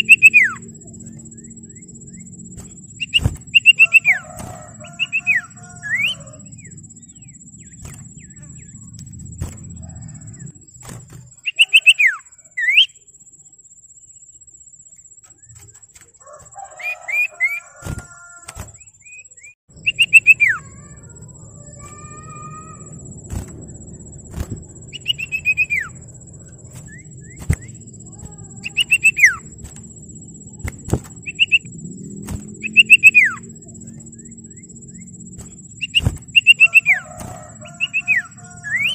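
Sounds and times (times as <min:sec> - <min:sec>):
bird whistled calls: 0:00.0 - 0:00.8, 0:01.4 - 0:10.5, 0:11.4 - 0:13.0, 0:18.8 - 0:20.9, 0:24.3 - 0:26.1, 0:26.7 - 0:29.6, 0:30.6 - 0:31.7, 0:32.6 - 0:33.6, 0:34.2 - 0:38.9
sharp clicks: 0:26.6 - 0:29.9, 0:30.6 - 0:33.1.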